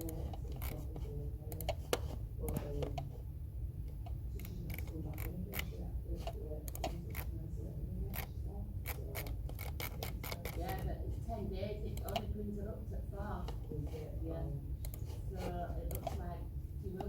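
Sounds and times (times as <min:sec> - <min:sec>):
steady low hum: 0:00.0 - 0:17.0
computer keyboard keys clicking: 0:04.4 - 0:07.3, 0:11.9 - 0:12.2.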